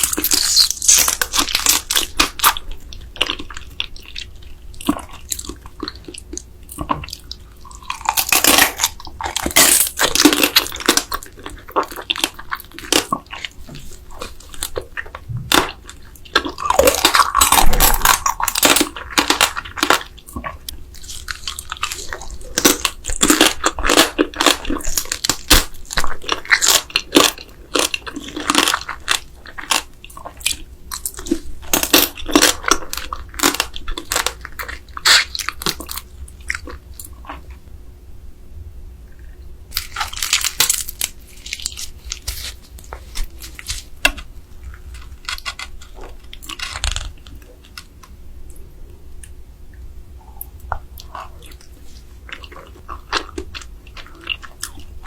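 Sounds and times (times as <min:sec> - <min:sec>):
wet chewing and crunching: 0:00.0 - 0:37.7, 0:39.1 - 0:48.6, 0:49.2 - 0:55.0.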